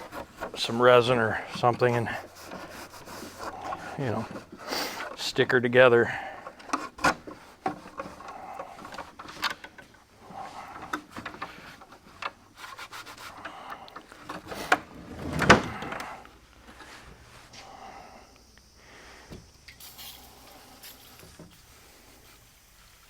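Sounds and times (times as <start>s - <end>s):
hand scrubbing a seat: 0.0s - 5.2s, 12.4s - 13.7s.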